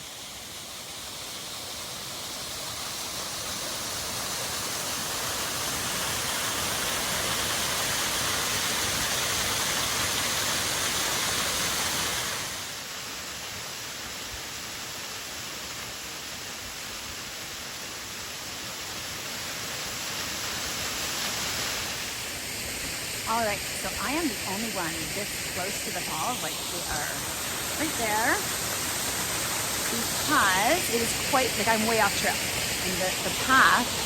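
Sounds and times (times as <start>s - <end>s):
waterfall rushing: 18.1s - 34.0s.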